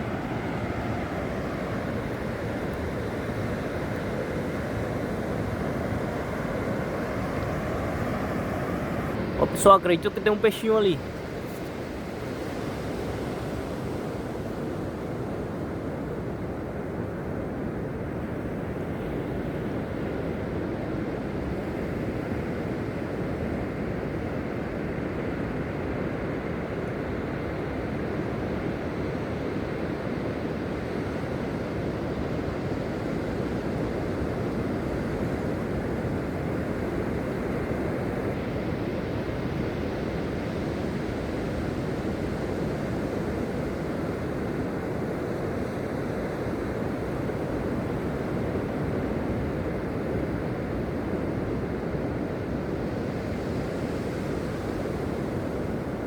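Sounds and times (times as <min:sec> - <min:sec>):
wind rumbling on microphone: 0:00.0 - 0:09.5
ocean surf washing onto beach: 0:00.0 - 0:16.6.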